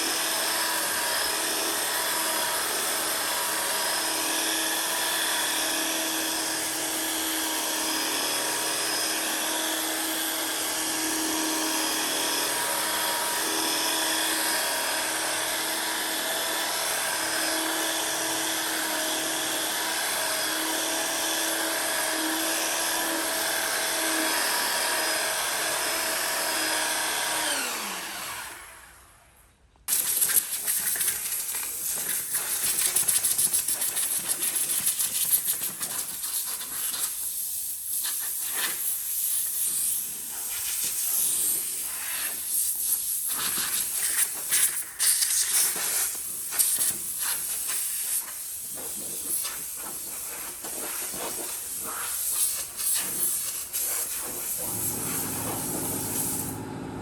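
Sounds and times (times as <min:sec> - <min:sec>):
power tool motor whine: 0:00.0 - 0:29.2, 0:54.0 - 0:57.0.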